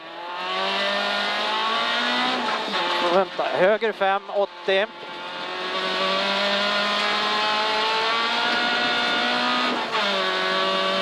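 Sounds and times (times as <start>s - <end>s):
rally car engine accelerating: 0.0s - 11.0s.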